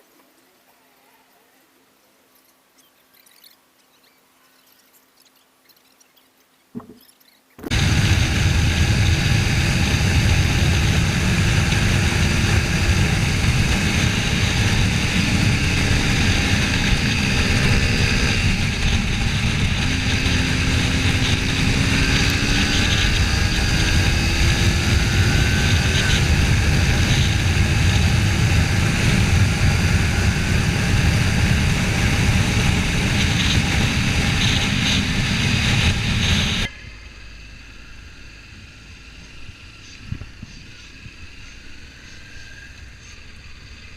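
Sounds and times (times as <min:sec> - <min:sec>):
motorcycle engine droning: 0:06.8 - 0:43.9
wind rushing over microphone: 0:07.6 - 0:42.7.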